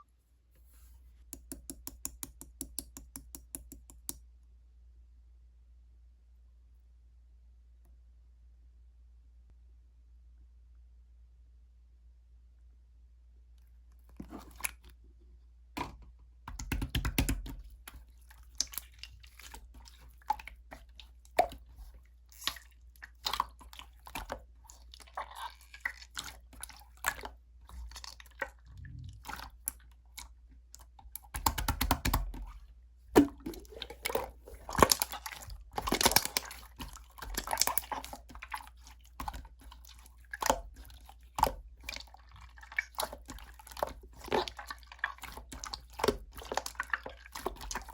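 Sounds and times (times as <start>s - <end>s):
slime squished by hand: 33.2s - 47.9s.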